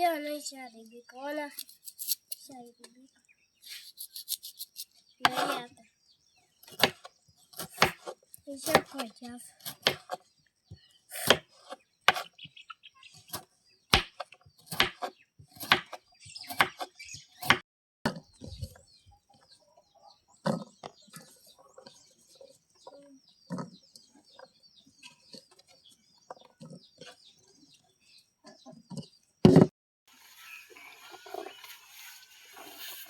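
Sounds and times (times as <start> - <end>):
knife chopping on wooden board: 5.2 - 5.6, 6.6 - 9.0, 9.6 - 10.2, 11.1 - 12.3, 13.3 - 18.2.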